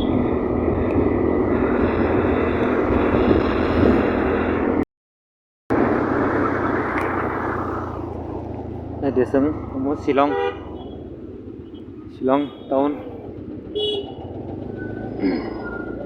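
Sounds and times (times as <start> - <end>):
scooter road noise: 0.0 - 4.8, 5.7 - 16.0
wind noise: 0.0 - 4.8.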